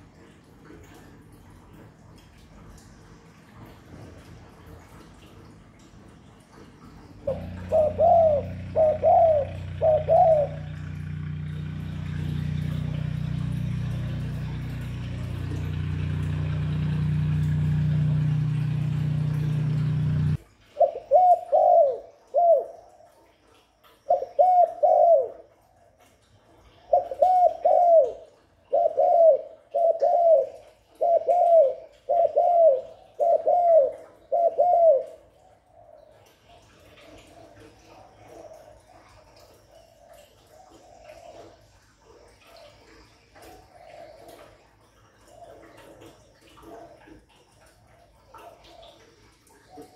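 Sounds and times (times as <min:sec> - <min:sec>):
low hum: 0:07.2 - 0:20.4
dove cooing: 0:07.2 - 0:22.9, 0:24.1 - 0:25.6, 0:26.9 - 0:49.9.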